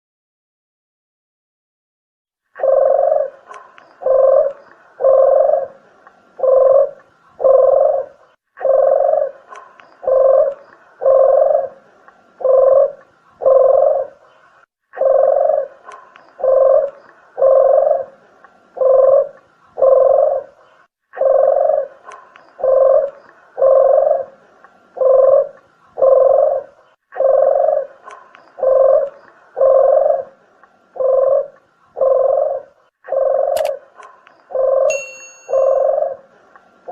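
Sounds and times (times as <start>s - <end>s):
dove cooing: 2.6s - 36.9s.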